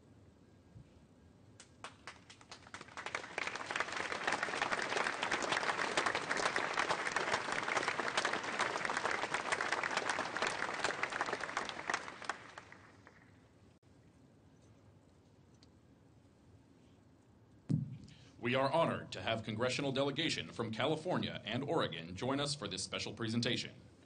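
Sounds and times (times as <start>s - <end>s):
audience applauding: 1.8s - 13.4s.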